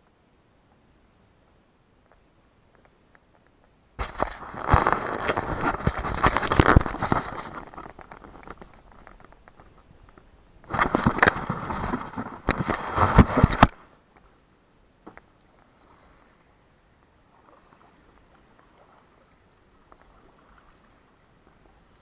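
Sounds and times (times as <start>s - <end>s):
kayak paddle splashing: 15.0s - 22.0s.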